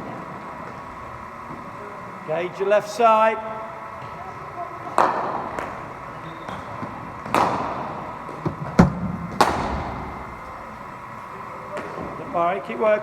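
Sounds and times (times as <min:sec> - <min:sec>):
cricket ball cracks off bat: 0:07.3 - 0:10.5
dull ball thud: 0:07.3 - 0:10.7.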